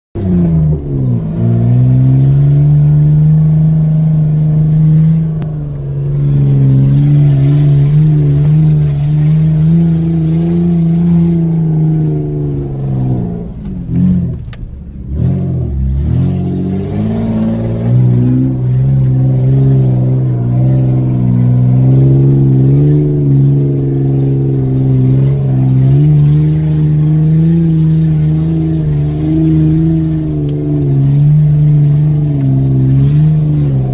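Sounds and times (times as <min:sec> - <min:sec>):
car engine from inside cabin: 0:00.2 - 0:33.9.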